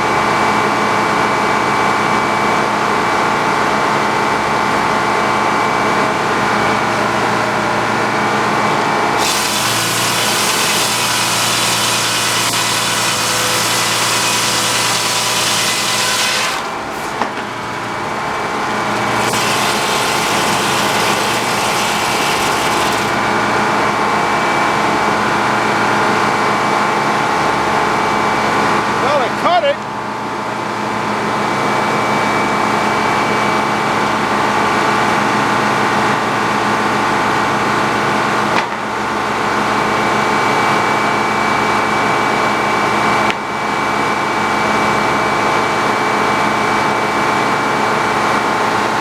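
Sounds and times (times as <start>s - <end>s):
saw blade cutting log: 9.2s - 23.4s
mill engine humming: 9.2s - 23.9s.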